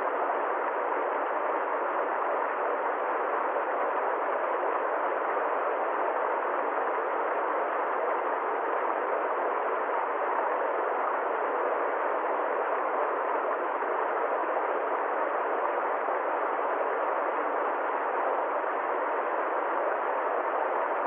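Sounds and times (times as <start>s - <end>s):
muffled steady rushing noise: 0.0s - 21.0s.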